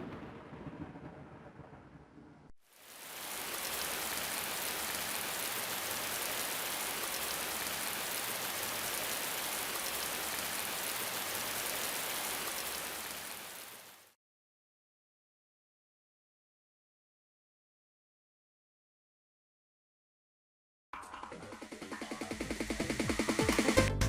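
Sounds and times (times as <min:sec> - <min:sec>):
steady even hiss: 0:02.7 - 0:14.0.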